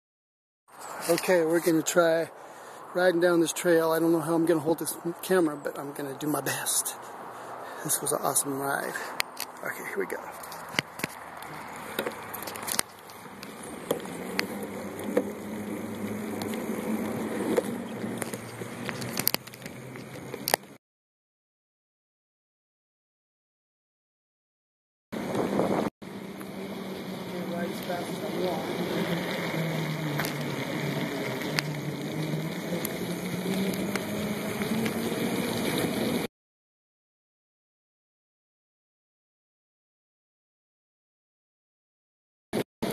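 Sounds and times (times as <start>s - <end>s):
bicycle rolling rushing noise: 0.8s - 20.8s, 25.2s - 36.3s
bicycle clicks and rattles: 10.3s - 20.8s, 28.4s - 36.2s
wind rush on microphone: 25.2s - 25.9s.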